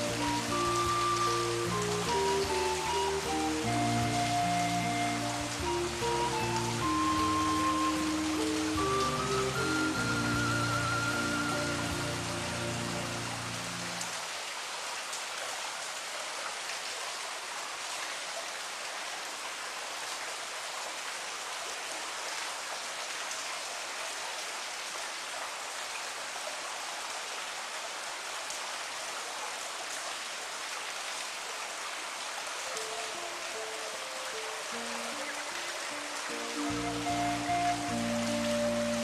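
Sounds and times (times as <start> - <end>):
steady rain: 0.0 - 39.0.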